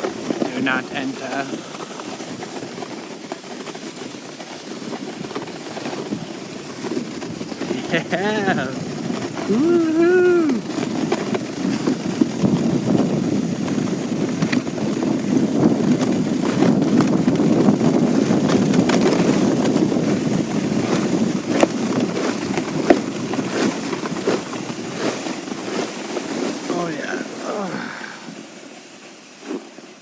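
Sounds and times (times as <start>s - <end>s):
small clicks and bumps: 0.0s - 27.3s
wind on microphone: 0.0s - 28.4s
sled scraping over snow: 0.0s - 30.0s.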